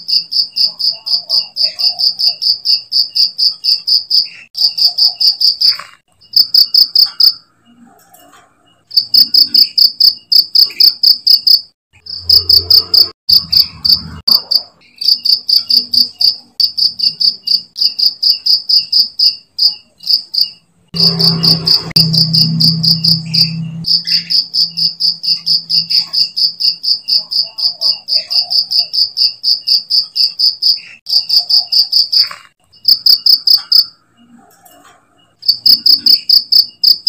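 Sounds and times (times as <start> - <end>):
cricket chirping: 0.0 - 7.4, 8.9 - 34.0, 35.4 - 37.0.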